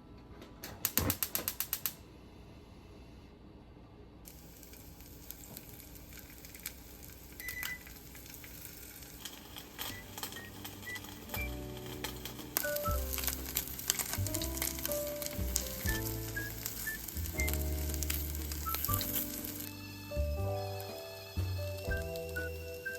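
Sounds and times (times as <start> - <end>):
sharp clicks: 0.8 - 2.0
steady cooking hiss: 4.3 - 22.9.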